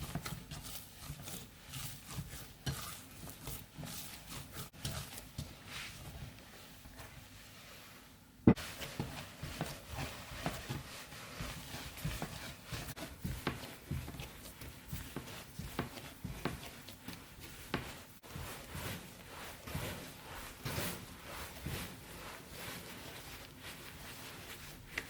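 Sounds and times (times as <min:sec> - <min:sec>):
food preparation knocks and thuds: 0:08.4 - 0:09.8.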